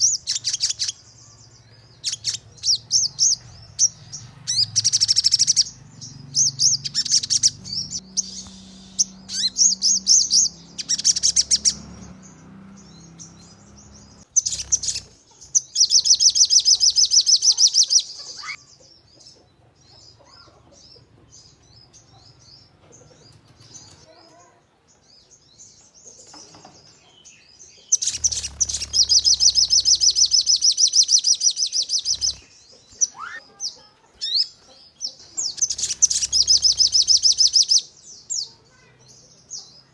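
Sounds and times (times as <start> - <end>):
songbird singing rapid high notes: 0.0 - 18.6, 27.9 - 34.6, 35.4 - 38.5
soft bird chirps: 0.0 - 39.9.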